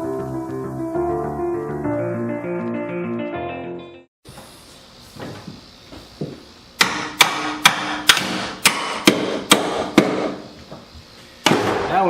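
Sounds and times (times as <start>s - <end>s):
hammer striking metal: 6.8s - 10.4s.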